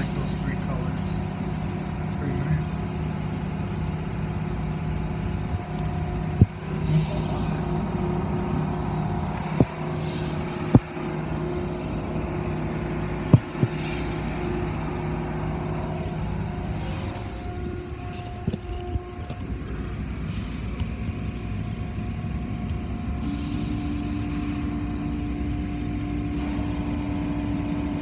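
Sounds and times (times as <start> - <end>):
car wash machinery humming: 0.0 - 28.0
sharp knocks: 13.3 - 13.8.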